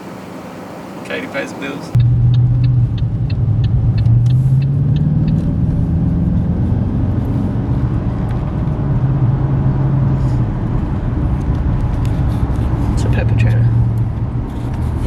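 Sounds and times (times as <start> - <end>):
car engine running: 0.0 - 15.0
road rumble: 0.0 - 15.0.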